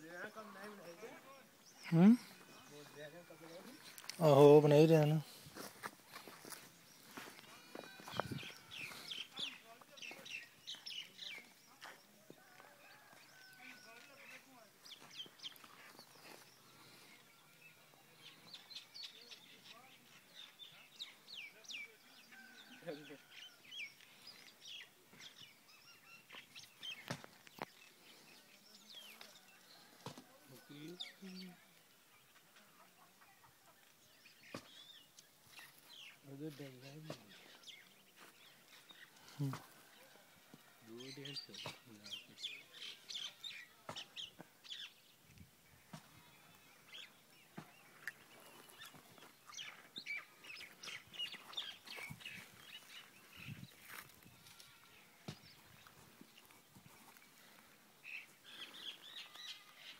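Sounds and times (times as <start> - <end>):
small birds chirping: 0.0 - 59.9
faint bird chirps and calls: 45.7 - 59.9.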